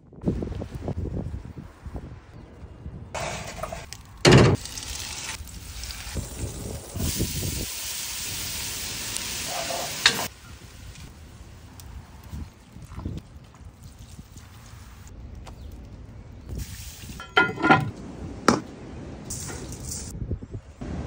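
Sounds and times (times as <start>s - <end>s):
onion sizzling in hot fat: 4.6s - 12.5s.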